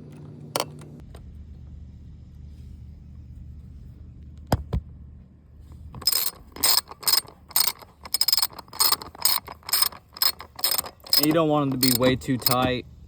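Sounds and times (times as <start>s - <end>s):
socket ratchet clicking: 6.0s - 12.6s.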